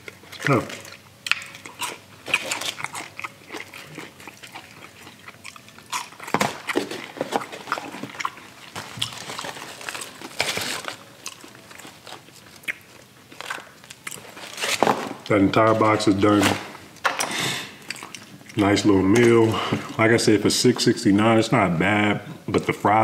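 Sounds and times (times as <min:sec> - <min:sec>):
chewing fried food: 0:00.0 - 0:14.6, 0:17.7 - 0:20.0.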